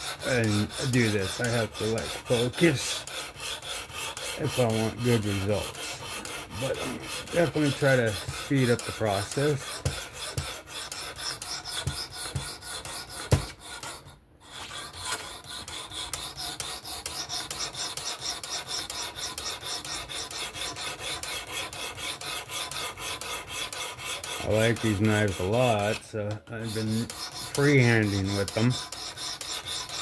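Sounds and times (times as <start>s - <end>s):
sharpening stone rasping on blade: 0.0s - 26.0s, 26.6s - 30.0s
sharp knock: 13.3s - 13.6s.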